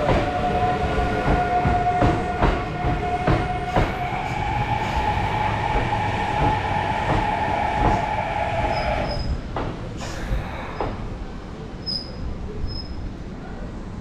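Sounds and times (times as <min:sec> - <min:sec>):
electric train whine: 0:00.0 - 0:09.5
wheels rumbling on rail: 0:00.0 - 0:14.0.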